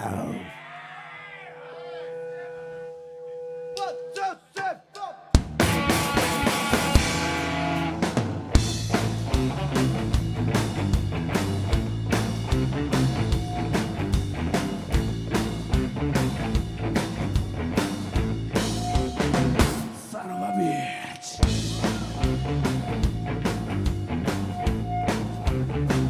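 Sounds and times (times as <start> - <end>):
rock band playing: 5.4 - 20.0, 21.4 - 26.0
driving drum beat: 5.4 - 20.2, 21.4 - 26.0.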